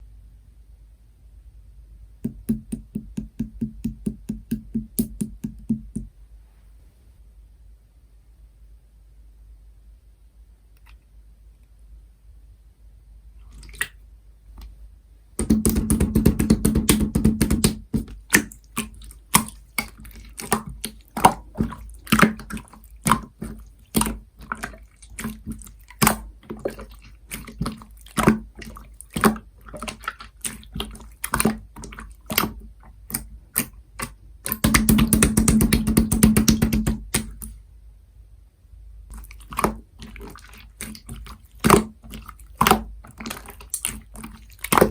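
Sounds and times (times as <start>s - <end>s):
slime crackling rapidly: 15.4s - 37.5s
slime squished by hand: 15.4s - 37.6s, 39.1s - 44.9s.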